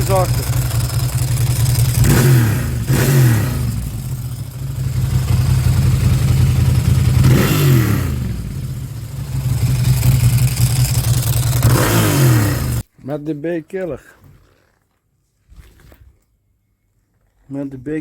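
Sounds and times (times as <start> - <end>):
motorcycle engine idling and revving: 0.0 - 12.8.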